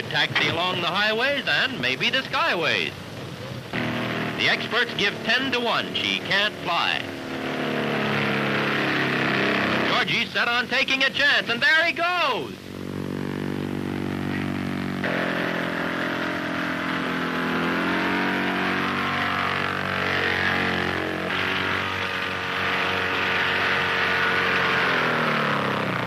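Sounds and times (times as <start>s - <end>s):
light plane engine running: 12.4s - 26.0s.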